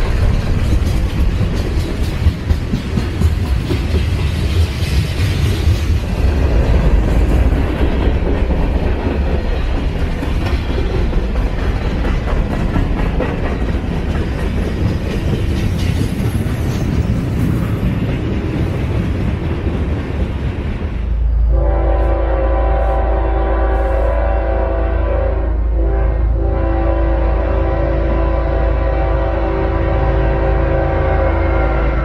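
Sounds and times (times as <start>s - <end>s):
freight train wheels rumbling: 0.0s - 32.0s.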